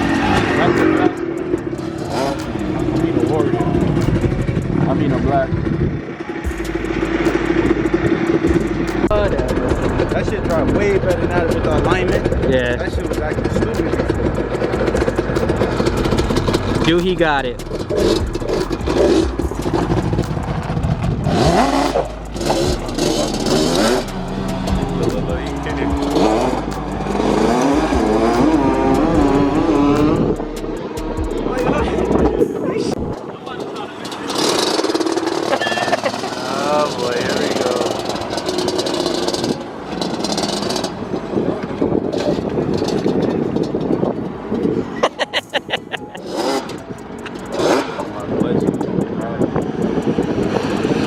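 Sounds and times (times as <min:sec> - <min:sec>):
vehicle engines revving: 0:00.0 - 0:51.0.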